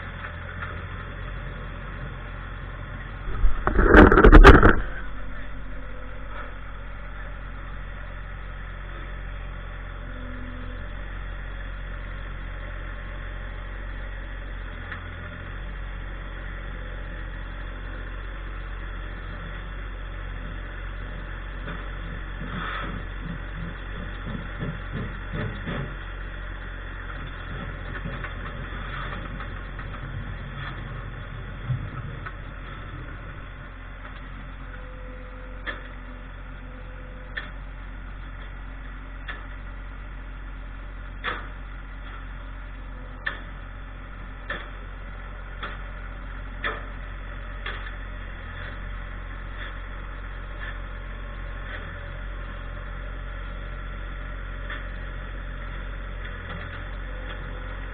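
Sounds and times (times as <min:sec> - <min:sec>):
tractor engine running: 0:00.0 - 0:57.9
sharp knocks: 0:03.3 - 0:05.2.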